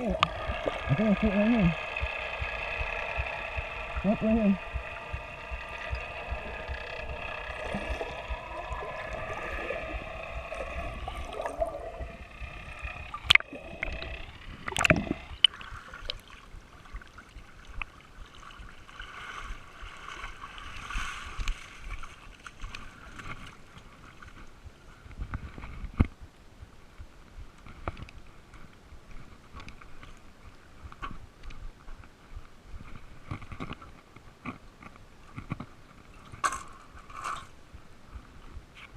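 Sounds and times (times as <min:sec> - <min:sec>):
engine running steadily: 0:00.0 - 0:15.5
faint uneven hum: 0:00.0 - 0:38.9.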